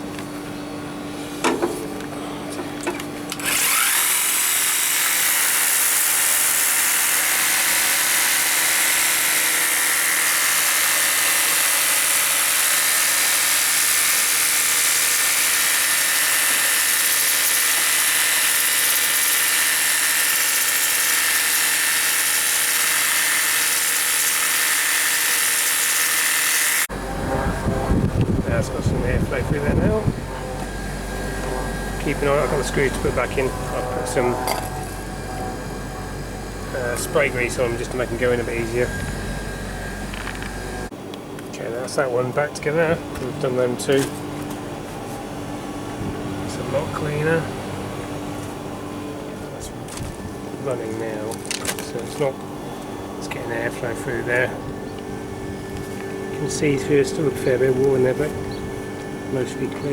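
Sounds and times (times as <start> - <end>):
pressure washer pump whining: 2.8 - 27.1, 28.0 - 40.9, 49.9 - 59.9
low steady hum: 26.8 - 59.9.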